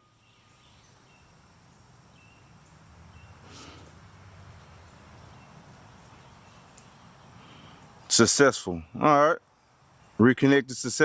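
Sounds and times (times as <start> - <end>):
insect drone: 0.0 - 8.2.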